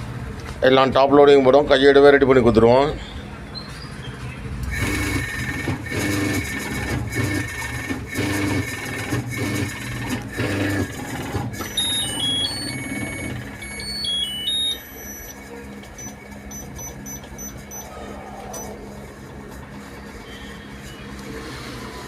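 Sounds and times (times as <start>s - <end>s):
motor humming in pulses: 4.7s - 22.0s
electronic beeps: 11.6s - 18.9s.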